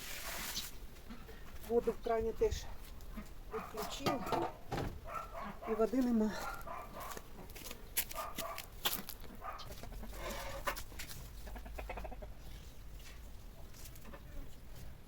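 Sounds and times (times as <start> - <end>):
hens clucking: 1.0 - 2.0, 2.9 - 14.7.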